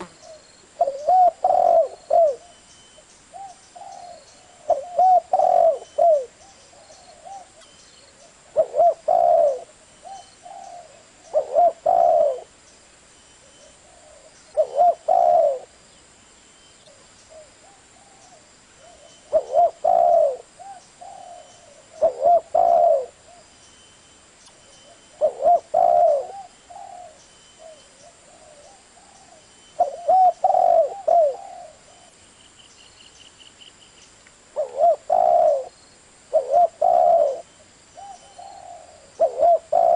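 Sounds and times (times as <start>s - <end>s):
dove cooing: 0.0s - 2.6s, 3.3s - 12.6s, 13.6s - 15.8s, 16.9s - 23.5s, 24.8s - 32.2s, 34.6s - 39.9s.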